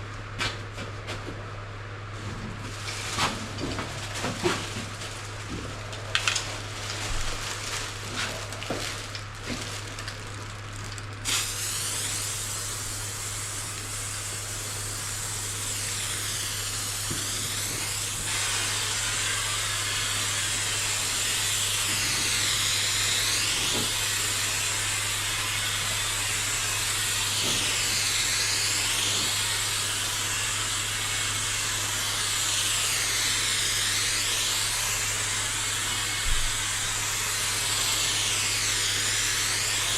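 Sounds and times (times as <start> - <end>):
aerosol can spraying hiss: 11.2 - 39.9.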